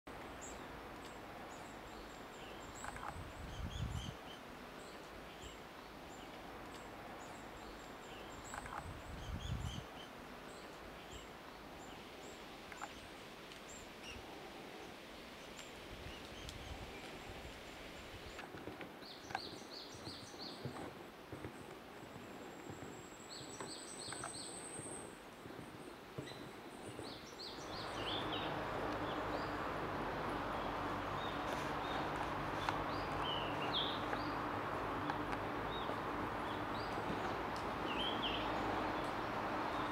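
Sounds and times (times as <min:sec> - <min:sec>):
birds chirping: 0:00.2 - 0:20.9, 0:21.5 - 0:39.9
steady hiss: 0:09.8 - 0:19.0.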